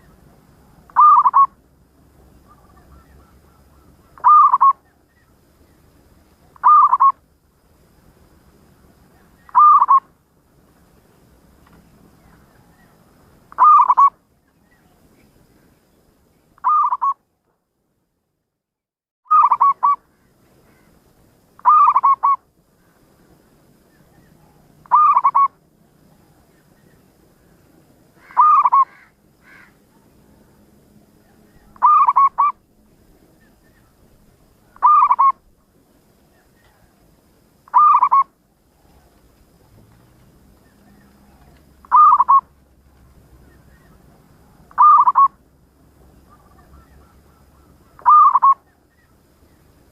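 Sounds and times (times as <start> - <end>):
dove cooing: 0.0 - 1.6, 2.5 - 4.9, 6.6 - 7.2, 9.2 - 10.0, 12.6 - 14.1, 16.6 - 17.2, 19.3 - 20.0, 21.6 - 22.4, 24.1 - 26.4, 28.2 - 30.1, 31.3 - 32.6, 34.6 - 35.5, 37.7 - 39.2, 40.7 - 42.5, 43.5 - 45.4, 46.2 - 49.2.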